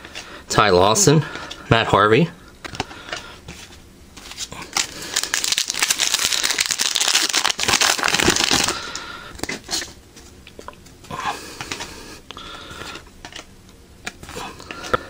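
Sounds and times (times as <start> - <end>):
cards rustling and clicking: 2.6 - 8.7, 12.8 - 15.0
foil wrapper tearing and crinkling: 4.4 - 9.9.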